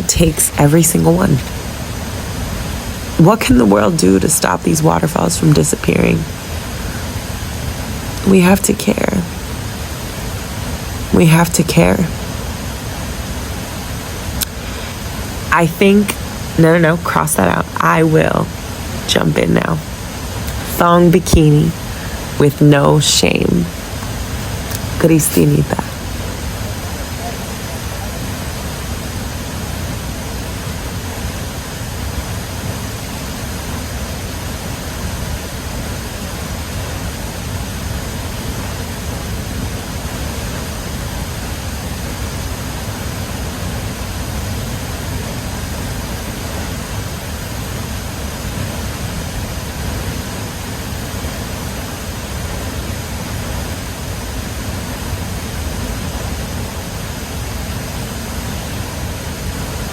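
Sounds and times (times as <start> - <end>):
waterfall crashing into pool: 0.3 - 8.3, 12.0 - 59.9.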